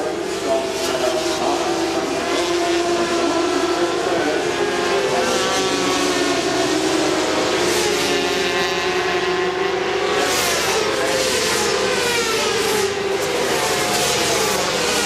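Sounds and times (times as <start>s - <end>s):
racing motorcycles passing at high revs: 0.0s - 15.0s.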